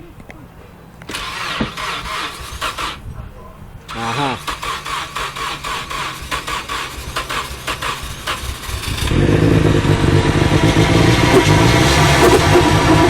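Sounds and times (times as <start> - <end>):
car engine running unevenly: 0.7 - 13.0.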